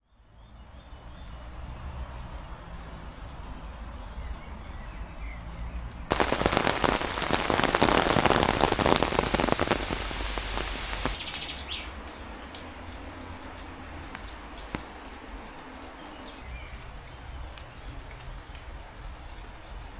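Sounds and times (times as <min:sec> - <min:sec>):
heavy rain pattering: 0:06.1 - 0:16.1.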